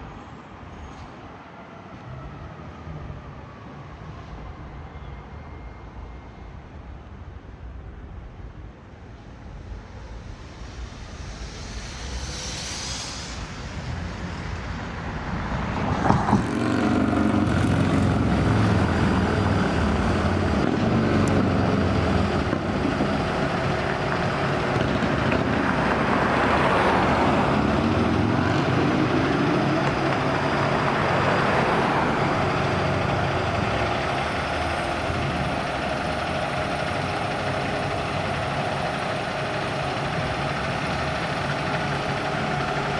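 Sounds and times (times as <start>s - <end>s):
heavy vehicle engine passing: 9.6s - 42.9s.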